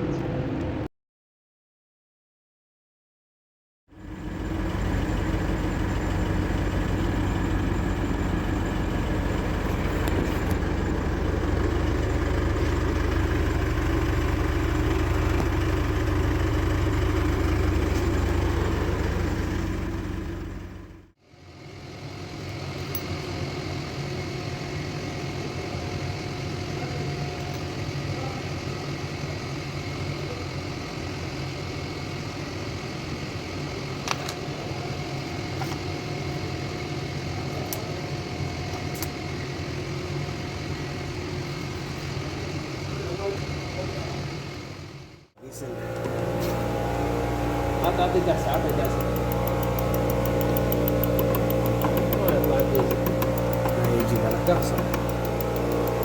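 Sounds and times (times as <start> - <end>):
diesel engine running: 3.9 - 56.0.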